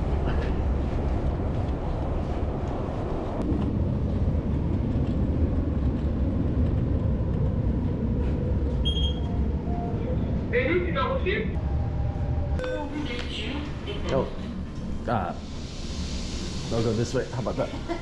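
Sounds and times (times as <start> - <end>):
low rumble of train and station: 0.0 - 18.0
brief lower tone: 8.8 - 10.3.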